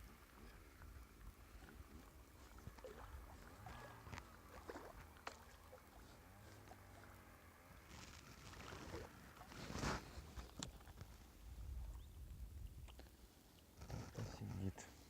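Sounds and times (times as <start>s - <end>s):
water lapping: 0.0s - 15.0s
wind rumble on microphone: 10.2s - 13.0s.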